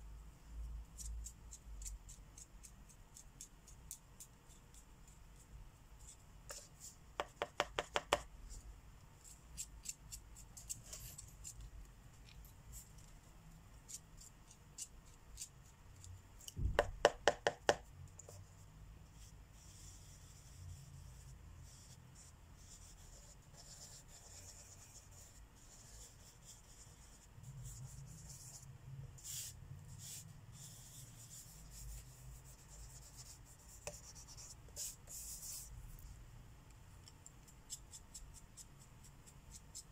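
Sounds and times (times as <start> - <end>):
marker scratching on paper: 19.2 - 35.7.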